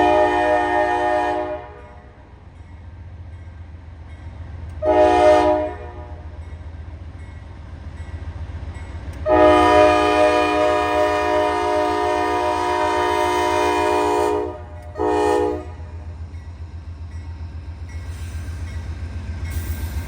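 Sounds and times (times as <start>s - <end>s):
locomotive air horn blasts: 0.0s - 2.1s, 4.8s - 6.2s, 9.2s - 16.0s
passing train rumble: 0.0s - 20.0s.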